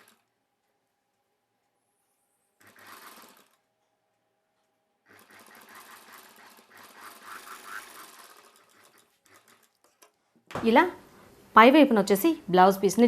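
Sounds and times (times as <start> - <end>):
sewing machine stitching: 0.0 - 0.3, 2.6 - 3.7, 5.0 - 10.2.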